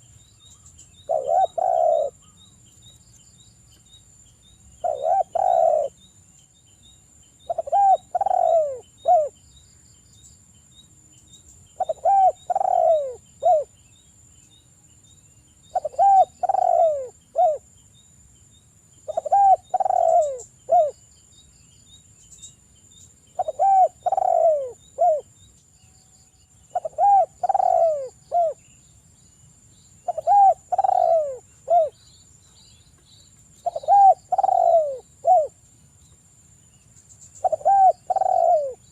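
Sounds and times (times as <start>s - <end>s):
dove cooing: 1.0s - 2.3s, 4.8s - 6.0s, 7.5s - 9.4s, 11.8s - 13.7s, 15.7s - 17.6s, 19.1s - 21.0s, 23.4s - 25.3s, 26.7s - 28.6s, 30.0s - 32.0s, 33.6s - 35.6s, 37.4s - 38.9s.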